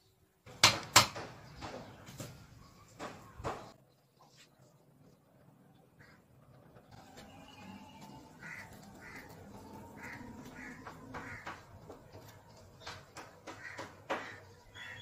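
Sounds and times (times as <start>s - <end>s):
rustling of plants: 7.0s - 13.8s
bird giving harsh calls: 8.1s - 11.7s.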